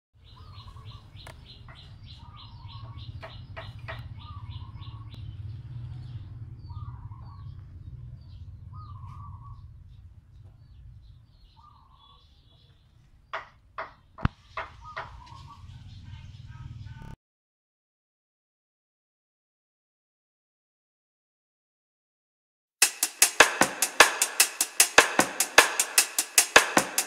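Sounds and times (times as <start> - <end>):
birds chirping: 0.2 - 17.2.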